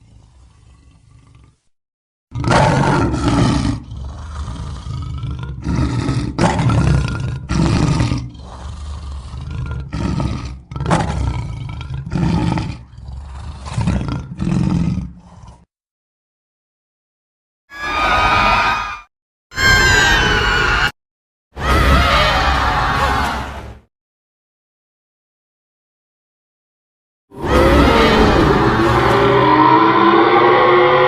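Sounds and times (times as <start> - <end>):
deep rough creature roars: 2.3 - 15.7, 27.4 - 31.0.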